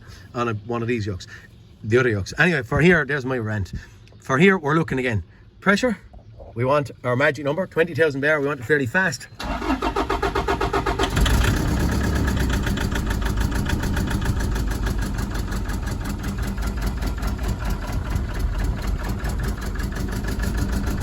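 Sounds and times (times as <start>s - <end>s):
diesel engine cranking on starter: 9.4s - 21.0s
diesel engine idling roughly: 9.4s - 21.0s.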